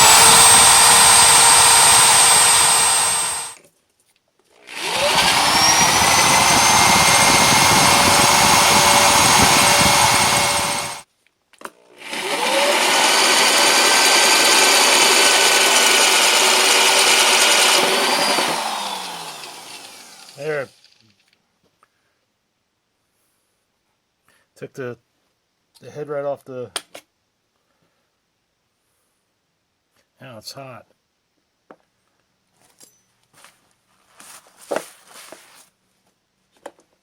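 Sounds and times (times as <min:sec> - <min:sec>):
electric drill drilling metal: 0:00.0 - 0:03.6, 0:04.7 - 0:11.0, 0:12.0 - 0:21.0.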